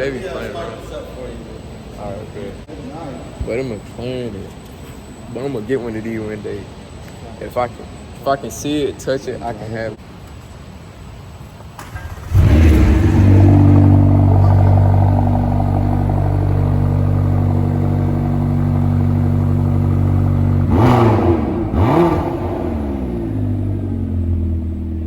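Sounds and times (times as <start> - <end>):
car engine revving: 11.8 - 25.0
car engine starting and idling: 11.8 - 25.0.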